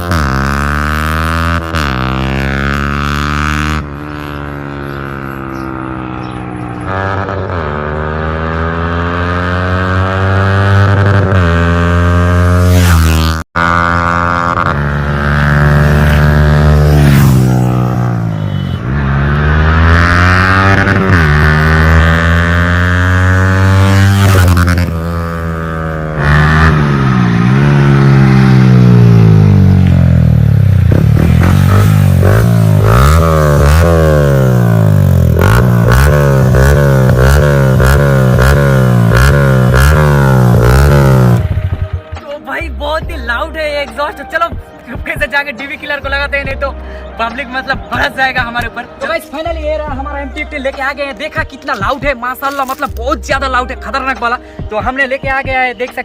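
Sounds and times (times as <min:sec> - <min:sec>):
motorcycle engine accelerating: 0:00.0 - 0:42.2.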